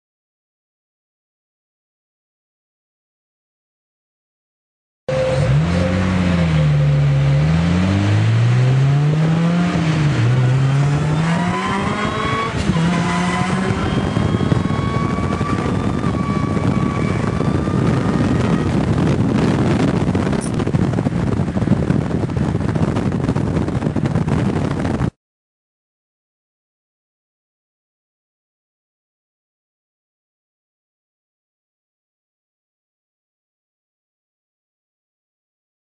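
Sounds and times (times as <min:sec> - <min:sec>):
high steady whine: 0:05.1 - 0:08.9
car engine revving: 0:05.1 - 0:24.8
loud rushing noise: 0:05.1 - 0:25.1.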